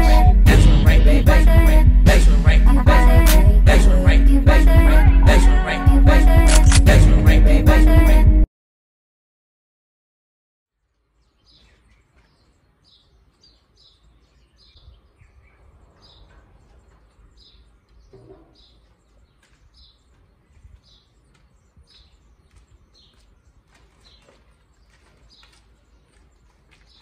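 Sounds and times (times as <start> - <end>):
small bird chirping: 10.9 - 27.0.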